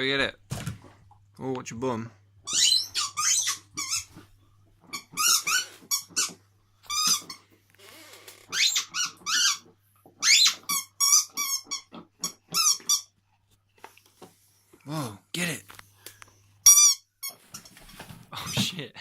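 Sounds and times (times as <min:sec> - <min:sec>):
squeaky toy squeaking: 0:02.4 - 0:04.2, 0:04.9 - 0:07.4, 0:08.5 - 0:13.1, 0:16.6 - 0:17.4.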